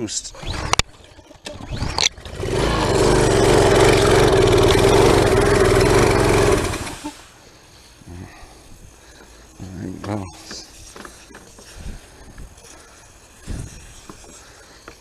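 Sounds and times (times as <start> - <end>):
small engine running: 2.0 - 7.2.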